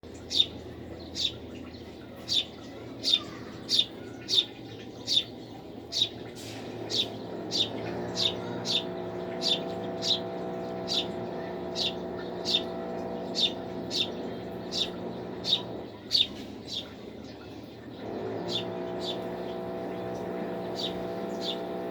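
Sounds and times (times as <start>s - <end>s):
bird chirping: 0.0s - 21.9s
steady low hum: 4.6s - 21.9s.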